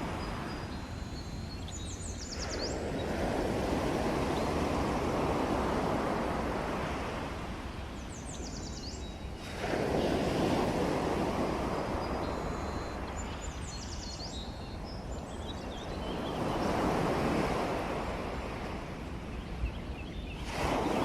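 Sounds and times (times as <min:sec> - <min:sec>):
bird chirping: 0:00.1 - 0:03.2, 0:11.9 - 0:16.7
ocean waves surging: 0:02.6 - 0:07.8, 0:09.3 - 0:13.1.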